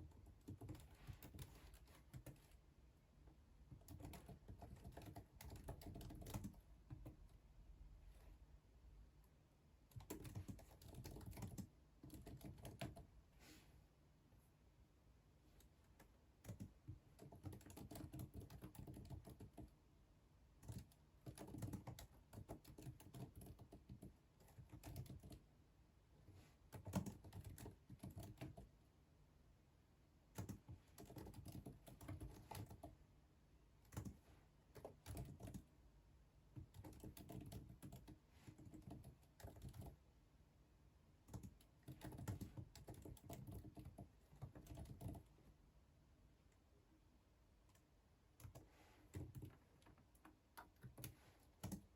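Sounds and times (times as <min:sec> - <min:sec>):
computer keyboard typing: 0:00.0 - 0:02.6, 0:03.6 - 0:07.2, 0:09.9 - 0:13.1, 0:15.6 - 0:19.8, 0:20.6 - 0:25.5, 0:26.7 - 0:28.7, 0:30.4 - 0:33.0, 0:33.8 - 0:35.7, 0:36.5 - 0:40.0, 0:41.2 - 0:45.4, 0:47.6 - 0:51.9.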